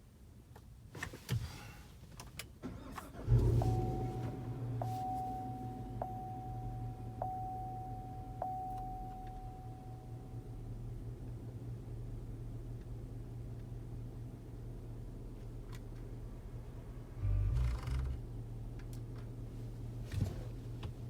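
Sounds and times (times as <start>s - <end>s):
engine starting and idling: 2.6s - 7.4s, 17.2s - 18.3s
warning chime: 3.6s - 10.3s.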